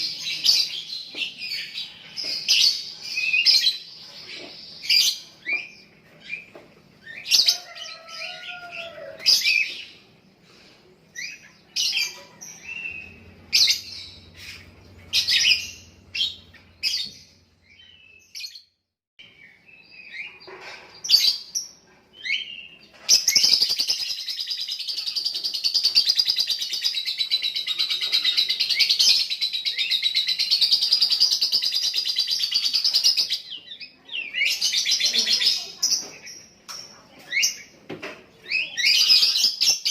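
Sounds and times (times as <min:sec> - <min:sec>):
bird chirping and chattering: 0:11.1 - 0:18.6, 0:20.0 - 0:37.8.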